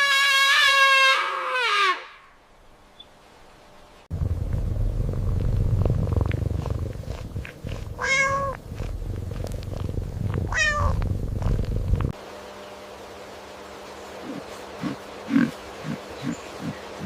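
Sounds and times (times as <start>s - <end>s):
cat purring: 4.1s - 12.2s
cat meowing: 8.0s - 8.6s, 10.5s - 11.0s.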